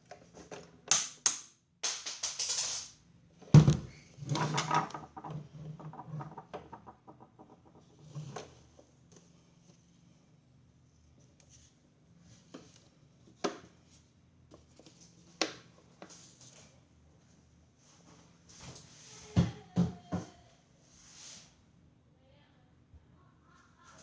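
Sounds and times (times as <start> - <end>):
parts clicking and scraping: 4.2 - 8.5.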